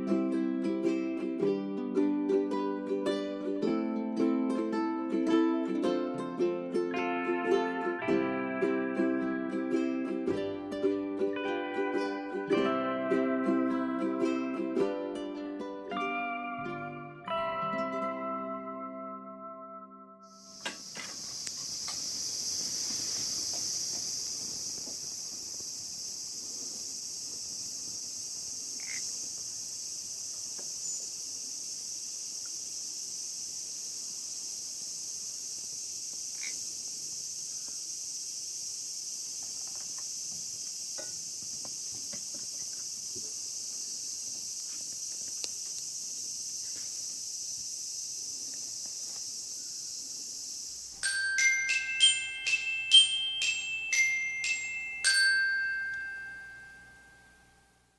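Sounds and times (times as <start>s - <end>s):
insects trilling: 20.3s - 56.5s
faint chirps and clicks: 20.4s - 50.9s.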